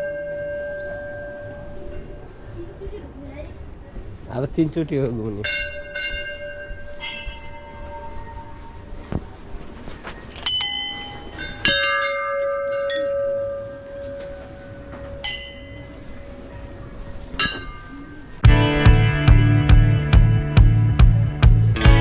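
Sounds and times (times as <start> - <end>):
metal bells ringing: 0.0 - 2.4, 5.4 - 8.8, 10.3 - 18.4.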